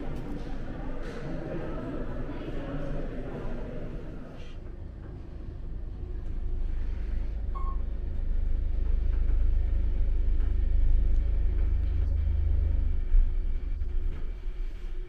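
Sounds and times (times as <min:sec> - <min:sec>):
deep rumble: 0:05.4 - 0:15.0.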